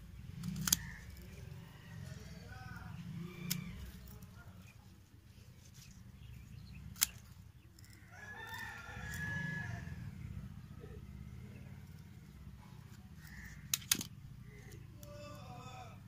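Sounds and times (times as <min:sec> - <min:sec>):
pruning shears snipping stems: 0:00.4 - 0:01.4, 0:03.2 - 0:04.4, 0:06.7 - 0:09.2
rooster crowing: 0:08.0 - 0:10.2.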